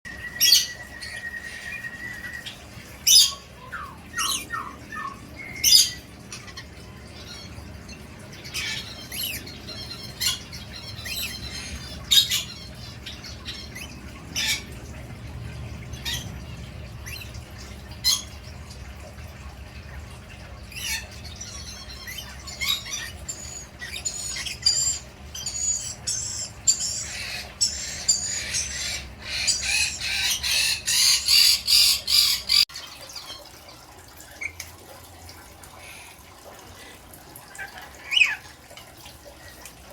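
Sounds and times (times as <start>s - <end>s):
parrot squawking: 0.4s - 14.7s, 20.7s - 32.6s, 37.5s - 38.5s.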